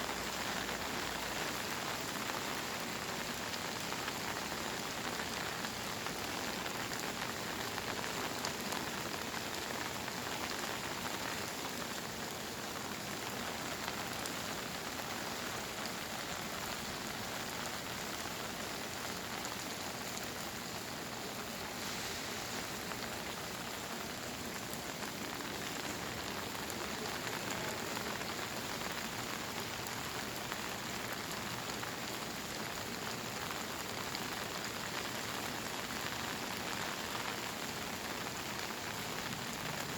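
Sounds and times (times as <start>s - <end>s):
rain pattering on surfaces: 0.0s - 39.9s.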